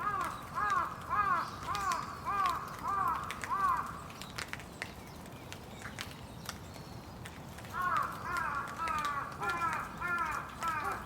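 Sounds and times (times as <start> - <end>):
crow cawing: 0.0 - 3.9, 7.7 - 11.0.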